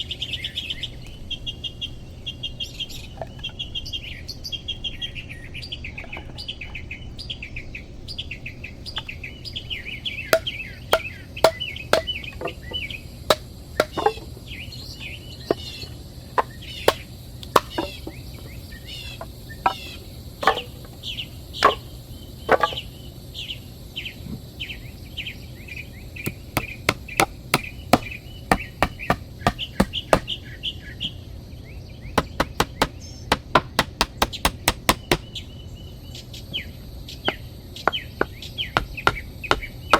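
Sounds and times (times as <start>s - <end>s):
small birds chirping: 0.0s - 39.9s
hand tool knocking: 10.4s - 14.3s, 17.6s - 18.2s, 26.3s - 30.3s, 32.2s - 35.3s, 37.9s - 39.9s.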